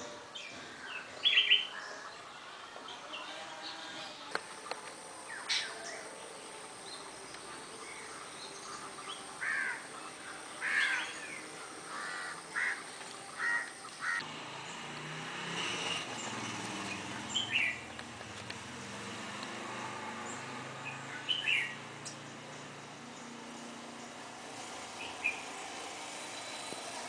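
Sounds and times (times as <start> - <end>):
birds short rough calls: 10.6 - 14.2.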